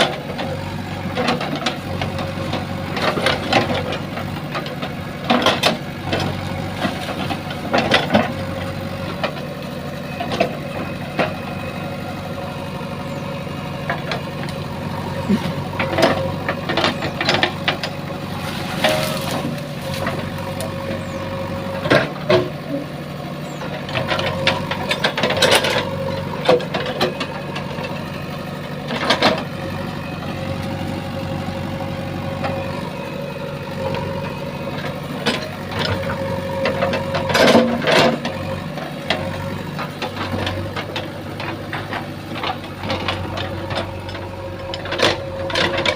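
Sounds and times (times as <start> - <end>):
diesel engine running: 0.0 - 45.9
sharp knocks and scrapes: 18.4 - 20.2.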